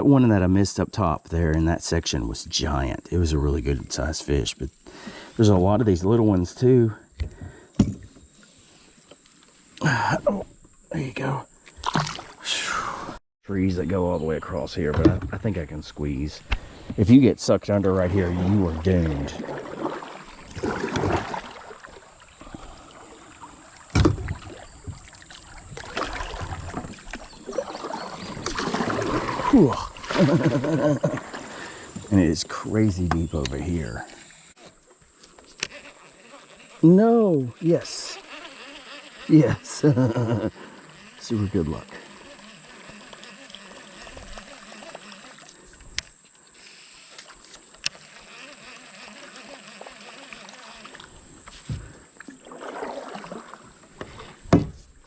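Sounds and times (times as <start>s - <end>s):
river water gurgling against boat: 2.1s - 55.0s
water splashing and rushing: 17.8s - 32.3s, 52.2s - 54.7s.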